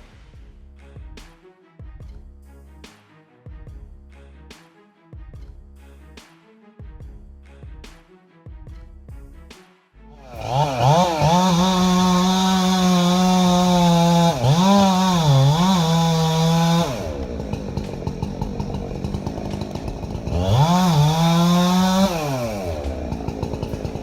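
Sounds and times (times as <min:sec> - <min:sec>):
chainsaw revving and idling: 0:10.1 - 0:24.0.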